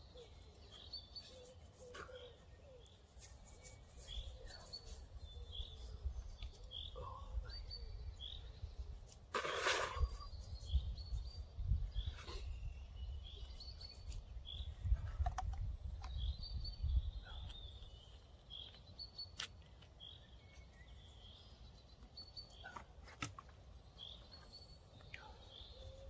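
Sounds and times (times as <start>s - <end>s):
bird chirping: 0.0s - 9.2s, 10.0s - 26.0s
wind rumble on microphone: 10.0s - 17.9s.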